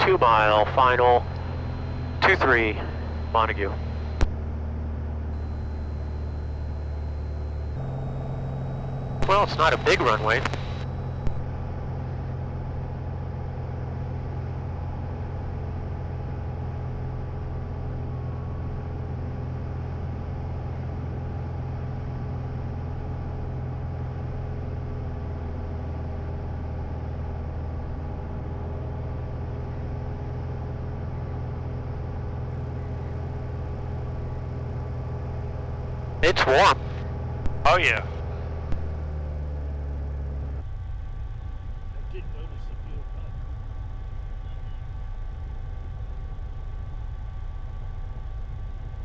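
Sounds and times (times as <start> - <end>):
airplane engine and propeller droning: 0.0 - 4.3, 5.4 - 11.4, 32.6 - 49.0.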